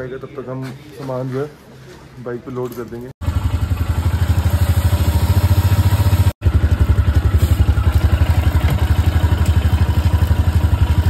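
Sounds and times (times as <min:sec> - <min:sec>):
motorcycle engine idling: 0:03.2 - 0:11.0.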